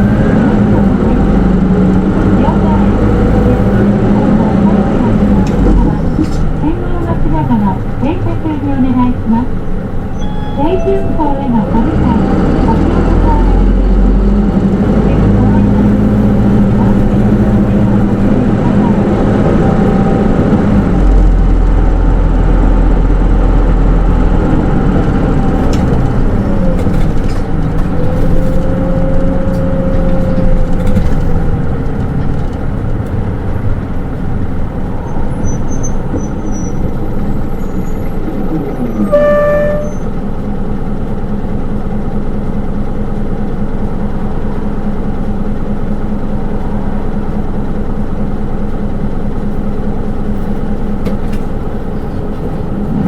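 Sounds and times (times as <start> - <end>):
bus diesel engine: 0.0 - 53.0
short electronic chime: 10.2 - 11.5.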